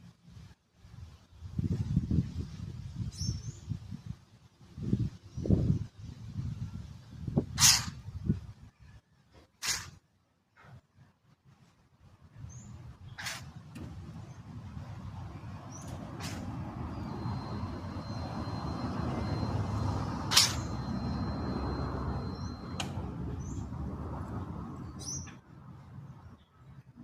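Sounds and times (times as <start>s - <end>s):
low rumble: 13.9s - 25.0s
short high bird chirps: 15.7s - 23.7s
thin steady high tone: 16.8s - 23.4s
sharp click: 20.3s - 20.8s.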